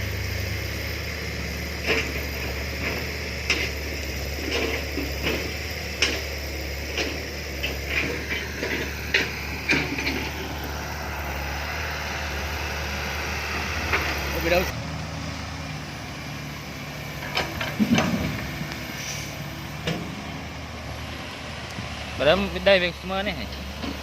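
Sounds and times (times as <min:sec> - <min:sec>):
heavy vehicle engine running: 0:00.0 - 0:24.0
metal clanks and knocks: 0:01.8 - 0:10.5, 0:17.2 - 0:18.7, 0:19.8 - 0:20.4.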